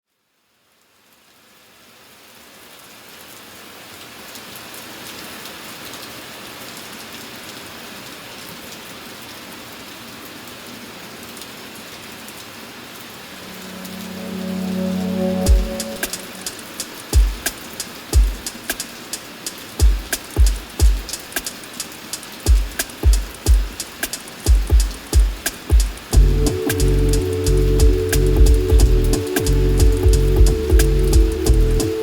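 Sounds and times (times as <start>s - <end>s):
steady rain falling: 0.1s - 32.0s
raindrops pattering: 11.2s - 32.0s
low held musical tone: 13.3s - 17.2s, 26.2s - 32.0s.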